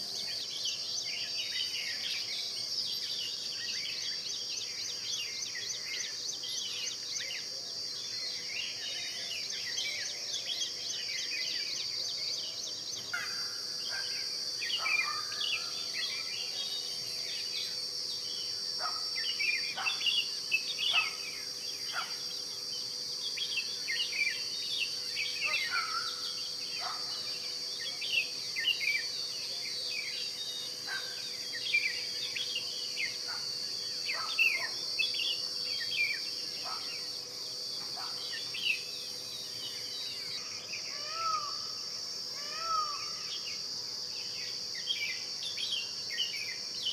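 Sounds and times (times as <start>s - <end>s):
high-pitched insect drone: 0.0s - 46.9s
bird chirps: 18.8s - 22.2s.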